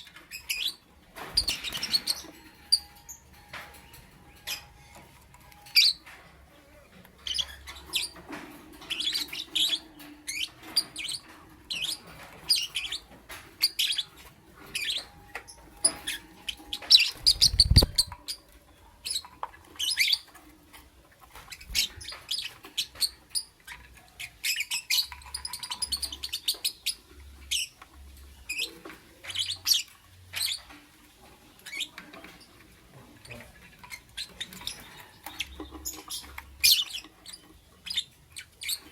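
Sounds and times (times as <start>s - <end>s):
lovebird chirping: 8.8s - 20.3s, 33.2s - 38.9s.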